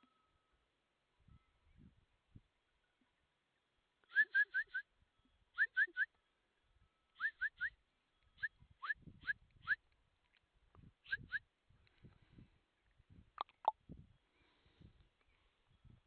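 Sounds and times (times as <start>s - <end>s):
rising whistle-like animal calls: 4.1s - 4.9s, 11.1s - 11.4s.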